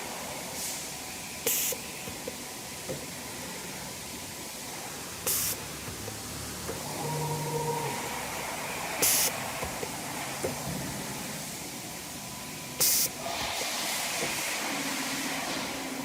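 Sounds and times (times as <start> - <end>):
steady hiss: 0.0 - 16.0
compressed air blasts: 1.5 - 1.8, 5.2 - 5.6, 9.0 - 9.4, 12.8 - 15.8.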